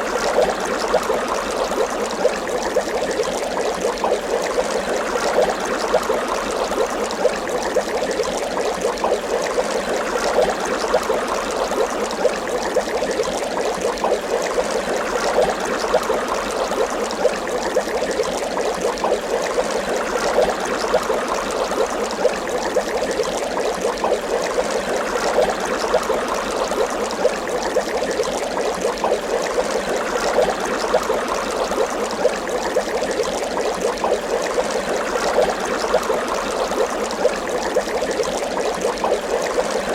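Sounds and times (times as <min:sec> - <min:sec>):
water bubbling: 0:00.0 - 0:39.9.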